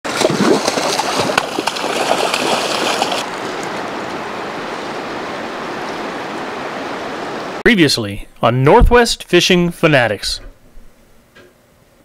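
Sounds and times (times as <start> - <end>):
splashing with knocks: 0.0 - 3.8
river water rushing: 0.1 - 7.6.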